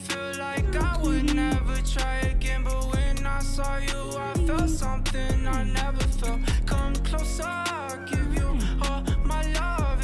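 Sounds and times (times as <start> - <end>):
pop hip-hop song: 0.0 - 10.0.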